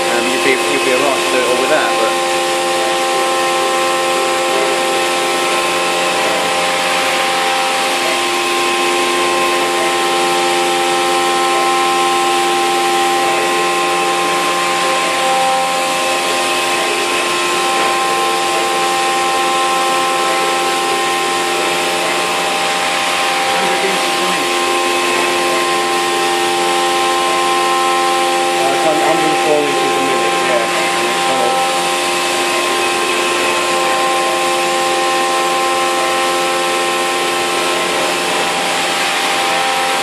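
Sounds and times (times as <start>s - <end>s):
milling machine whine: 0.0s - 40.0s.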